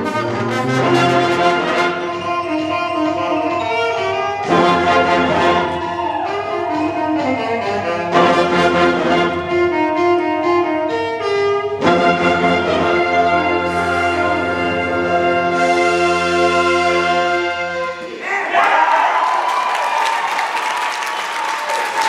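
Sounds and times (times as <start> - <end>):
wind band playing brass chords: 0.0 - 18.1.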